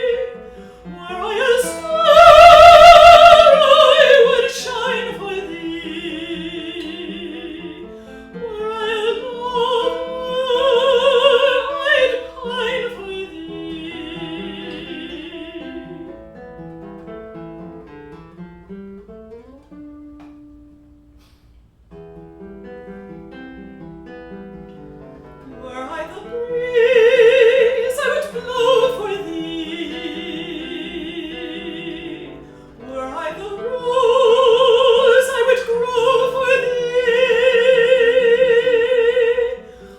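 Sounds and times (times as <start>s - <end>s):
operatic singing: 0.0s - 16.3s, 25.6s - 39.9s
plucked acoustic guitar: 0.0s - 39.9s.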